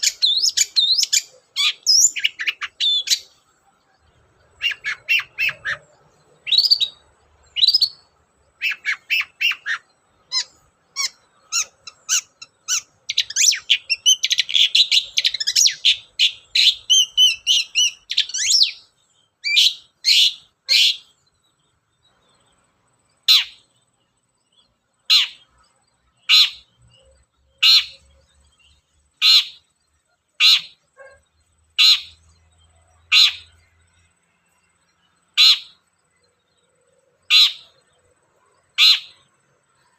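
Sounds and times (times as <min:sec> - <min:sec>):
sharp bird calls: 0:00.0 - 0:39.9
shrike singing chattering phrases: 0:04.2 - 0:21.1.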